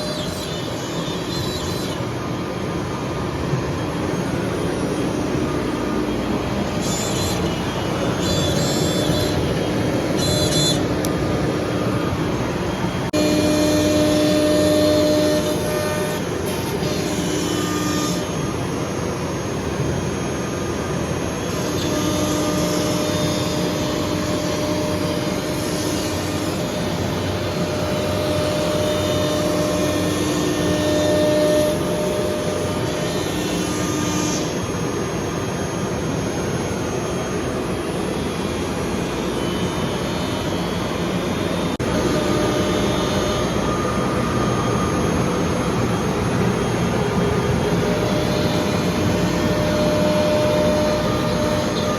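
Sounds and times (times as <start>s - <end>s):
faint hum: 0.0s - 51.9s
machinery whooshing drone: 23.8s - 51.9s.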